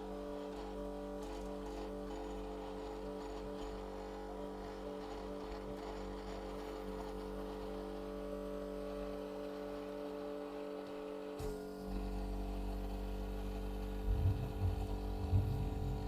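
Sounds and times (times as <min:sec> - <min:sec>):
electrical hum: 0:12.1 - 0:16.0.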